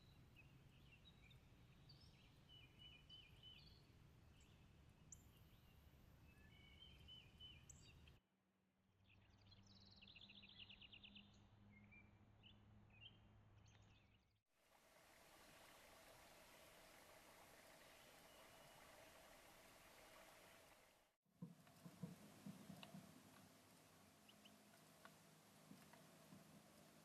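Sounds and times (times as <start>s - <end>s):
songbird chirps: 0.0s - 8.2s, 9.0s - 14.3s, 15.0s - 27.0s
steady hiss: 14.6s - 27.0s.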